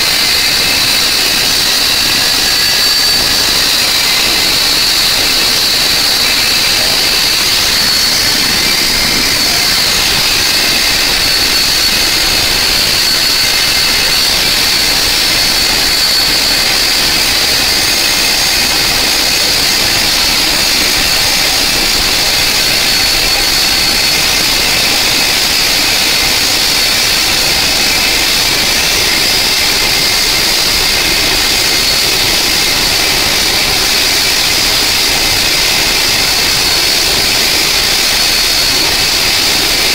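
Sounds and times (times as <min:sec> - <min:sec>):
helicopter turbine whine: 0:00.0 - 0:39.9.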